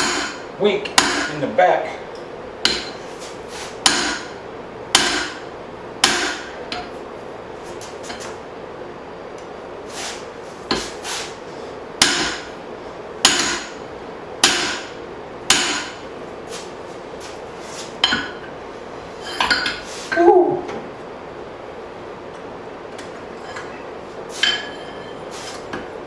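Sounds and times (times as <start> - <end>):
hammer ringing blows on hot steel: 14.4 - 14.9.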